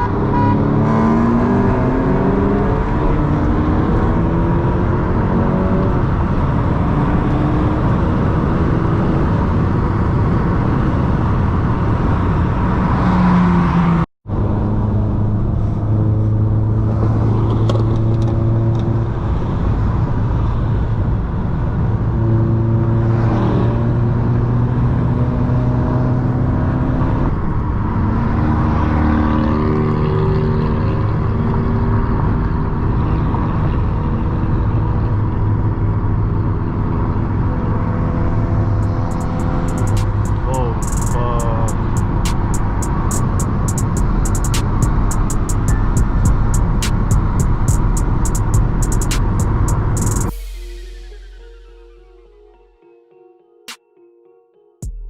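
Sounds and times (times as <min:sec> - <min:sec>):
car engine accelerating: 0:22.0 - 0:52.6.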